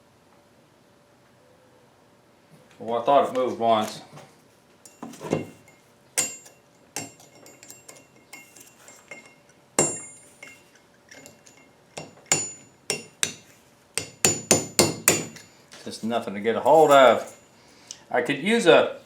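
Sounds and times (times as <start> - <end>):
hammer striking steel punch: 6.2 - 7.8, 9.8 - 10.6, 12.0 - 15.5.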